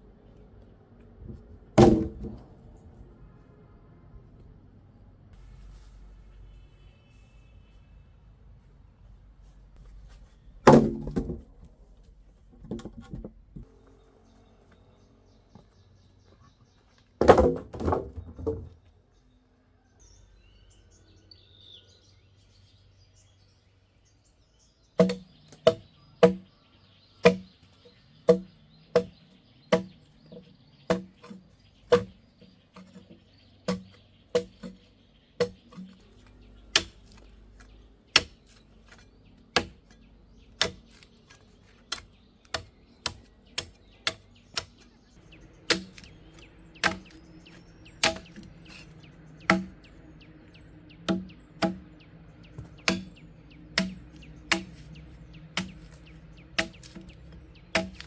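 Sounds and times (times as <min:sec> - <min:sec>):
hand tool striking hard material: 0:25.0 - 0:26.5, 0:27.2 - 0:27.5, 0:28.3 - 0:45.0, 0:45.7 - 0:50.0, 0:51.1 - 0:52.0, 0:52.6 - 0:53.2, 0:53.8 - 0:58.0.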